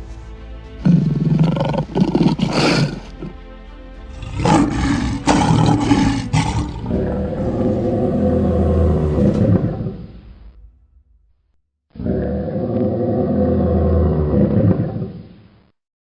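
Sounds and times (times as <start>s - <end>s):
lion roar: 0.8s - 3.4s, 4.0s - 10.7s, 12.0s - 15.3s.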